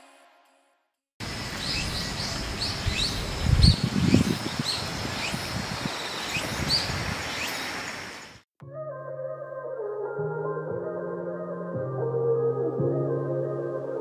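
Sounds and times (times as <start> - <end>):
small bird chirping: 1.4 - 8.4
background music: 8.6 - 14.0.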